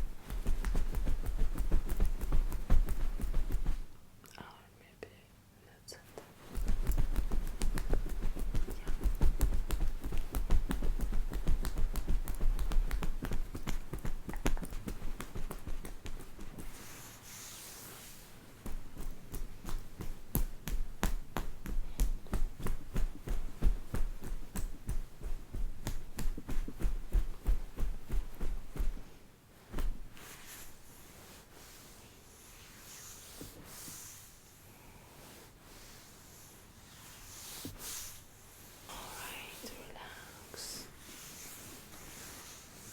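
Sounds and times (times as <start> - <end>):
rapid light tapping: 0.0 - 3.9, 6.4 - 16.8.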